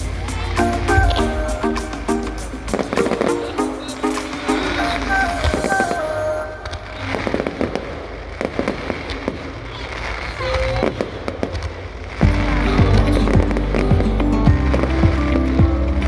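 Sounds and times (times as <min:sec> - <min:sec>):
background music: 0:00.0 - 0:06.7, 0:12.2 - 0:16.0
sharp fireworks bangs: 0:00.0 - 0:15.8
fireworks popping and crackling: 0:00.0 - 0:16.0.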